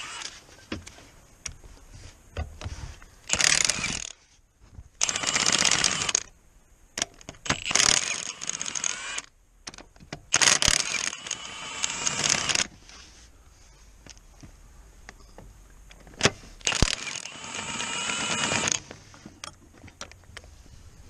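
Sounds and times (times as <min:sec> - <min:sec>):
power tool ratcheting clatter: 0:03.3 - 0:04.1, 0:05.0 - 0:06.3, 0:07.4 - 0:09.3, 0:10.3 - 0:12.7, 0:16.6 - 0:18.9.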